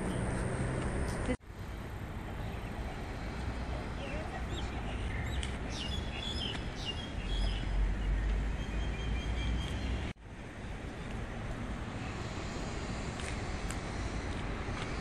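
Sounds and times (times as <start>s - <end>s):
steady noise haze: 0.0s - 7.0s, 10.2s - 15.0s
small birds chirping: 1.2s - 11.3s.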